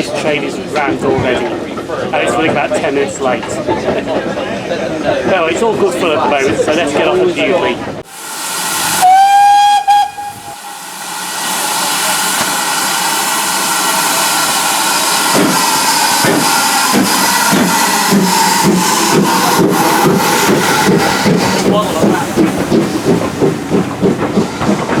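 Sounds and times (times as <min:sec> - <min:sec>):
locomotive exhaust chuffs: 0:08.1 - 0:25.0
steam hissing: 0:08.1 - 0:25.0
steam locomotive whistle: 0:08.2 - 0:21.4.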